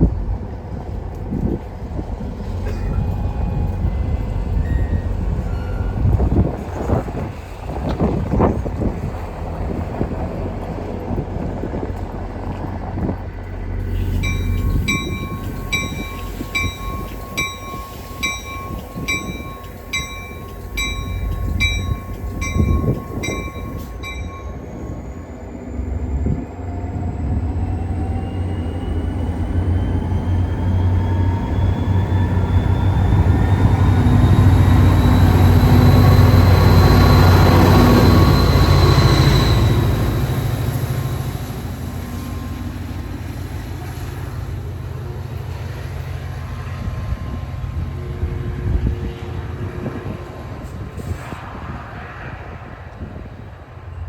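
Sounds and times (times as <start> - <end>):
locomotive humming: 0.0 - 54.0
train pulling away with rising whine: 0.0 - 54.0
bell dinging: 13.9 - 24.8.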